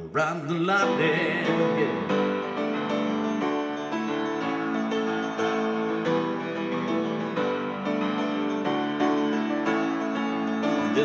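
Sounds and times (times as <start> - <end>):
person singing: 0.0 - 2.6, 10.8 - 11.0
keyboard chords: 0.8 - 11.0.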